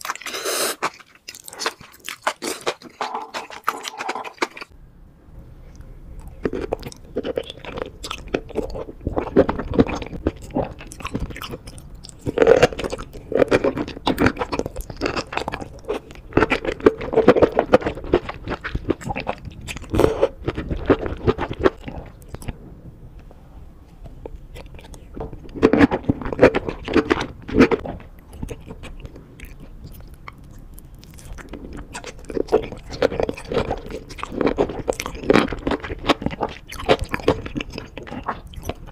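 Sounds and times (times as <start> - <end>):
wet crunchy bites: 0.0 - 4.7
close-miked chewing: 0.0 - 4.8, 5.6 - 38.9.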